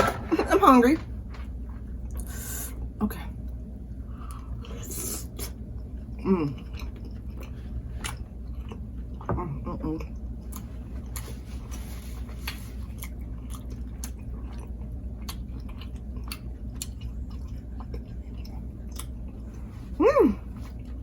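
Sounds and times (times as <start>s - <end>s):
person chewing food: 4.2s - 9.3s, 10.0s - 21.0s.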